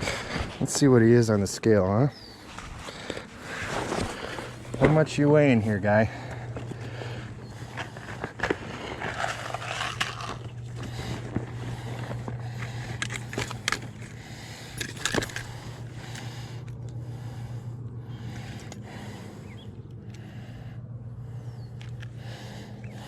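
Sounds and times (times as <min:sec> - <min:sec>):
steady low hum: 0:00.0 - 0:23.0
handling clicks knocks and scrapes: 0:06.3 - 0:17.0, 0:18.2 - 0:18.8, 0:21.6 - 0:22.2.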